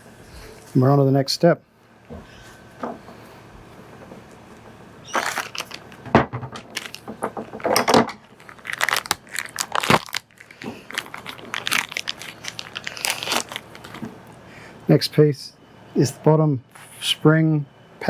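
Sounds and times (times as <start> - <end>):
plastic packaging crinkling: 5.0 - 6.0, 6.6 - 14.2.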